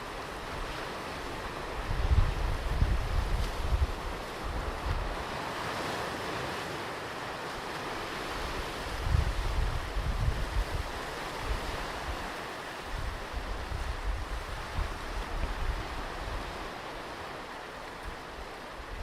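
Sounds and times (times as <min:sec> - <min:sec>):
ocean surf breaking on beach: 0:00.0 - 0:19.0
wind buffeting microphone: 0:01.6 - 0:05.3, 0:08.4 - 0:12.3, 0:12.9 - 0:16.8.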